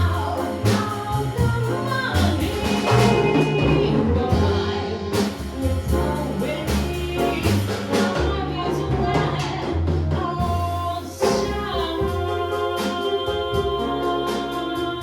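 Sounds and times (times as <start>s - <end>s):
bass notes: 0.0s - 15.0s
jazz band playing: 0.0s - 15.0s
person singing: 10.4s - 15.0s.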